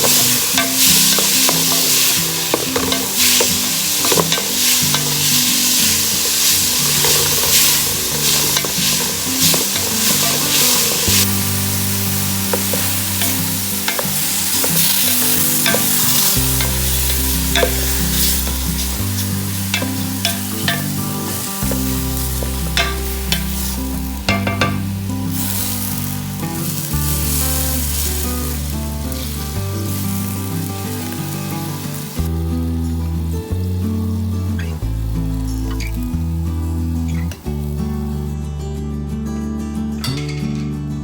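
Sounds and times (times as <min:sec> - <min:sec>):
food sizzling in a pot: 0:00.0 - 0:38.4
slow bass line music: 0:00.0 - 0:41.0
spoon clicking against a pot: 0:19.7 - 0:21.0.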